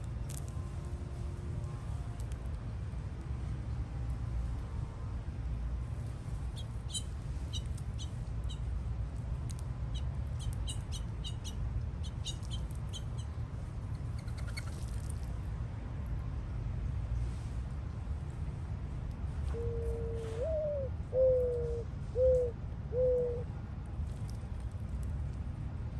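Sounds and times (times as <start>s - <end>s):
small birds chirping: 9.9s - 13.4s.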